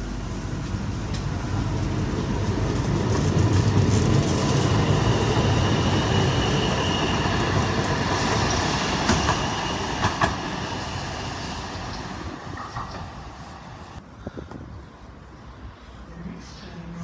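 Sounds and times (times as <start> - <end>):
train rumble and whine: 0.0 - 17.0
wheels clacking over rail joints: 0.6 - 13.3.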